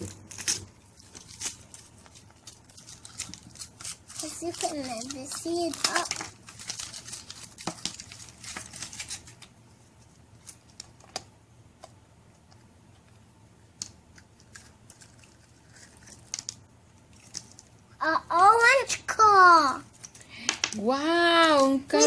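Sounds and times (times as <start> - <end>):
foil crinkling: 0.0 - 9.5.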